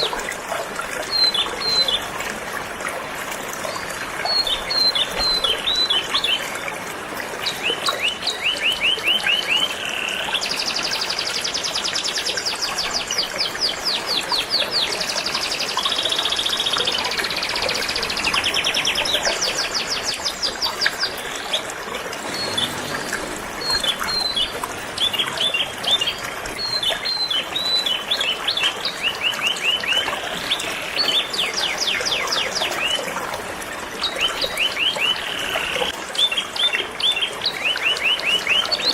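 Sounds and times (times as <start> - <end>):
river flowing: 0.0 - 38.9
canary singing trills: 22.3 - 28.4.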